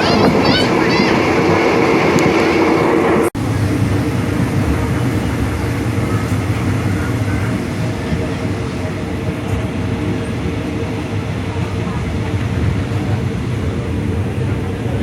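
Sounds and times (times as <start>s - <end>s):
diesel train rumble: 0.0s - 15.0s.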